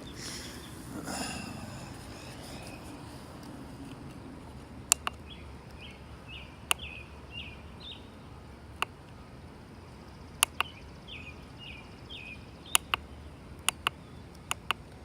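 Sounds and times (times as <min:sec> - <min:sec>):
faint outdoor background: 0:00.0 - 0:15.0
sharp clicks: 0:04.8 - 0:05.8, 0:06.6 - 0:06.9, 0:10.4 - 0:10.8, 0:12.7 - 0:15.0.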